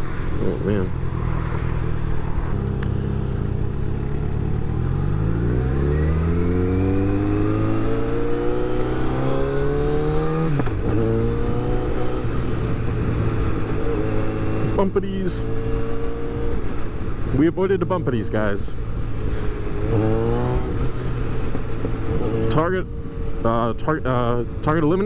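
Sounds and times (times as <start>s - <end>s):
motorcycle engine accelerating: 0.0s - 25.0s
wind and road noise: 0.0s - 25.0s.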